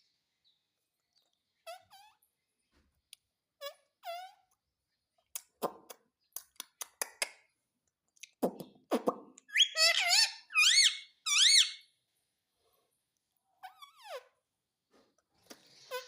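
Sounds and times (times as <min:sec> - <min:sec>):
parakeet harsh notes: 0:09.5 - 0:11.8
parakeet squeaky calls: 0:09.5 - 0:11.9, 0:13.6 - 0:14.3.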